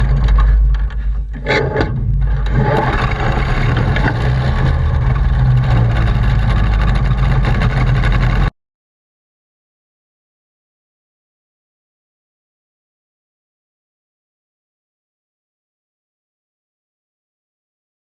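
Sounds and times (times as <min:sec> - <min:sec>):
ultralight aircraft engine droning: 0:00.0 - 0:08.5.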